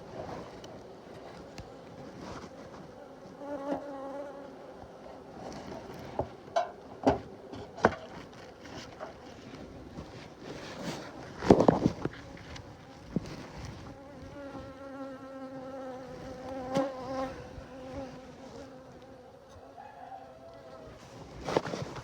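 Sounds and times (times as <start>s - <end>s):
fabric rustling on microphone: 0.0s - 3.0s, 8.1s - 14.7s, 20.9s - 22.0s
honeybee buzzing: 2.9s - 5.2s, 13.8s - 19.5s.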